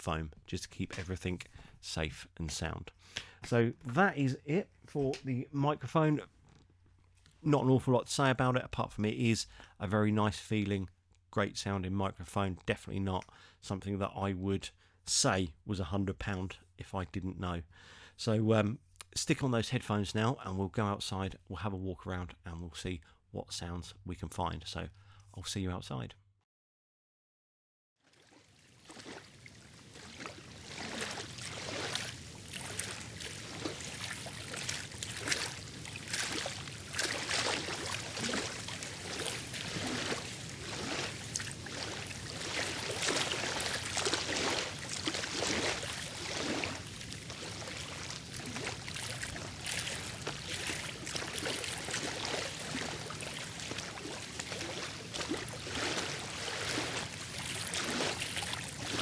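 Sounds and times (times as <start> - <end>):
water lapping against shore: 28.1 - 59.0.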